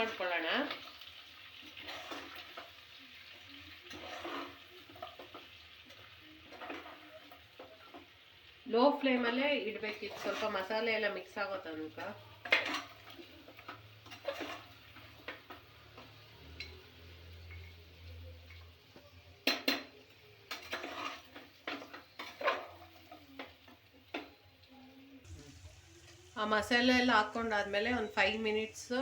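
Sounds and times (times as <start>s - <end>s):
spoon scraping frying pan: 0.7s - 8.2s, 9.7s - 11.0s, 11.9s - 17.8s, 19.4s - 24.3s.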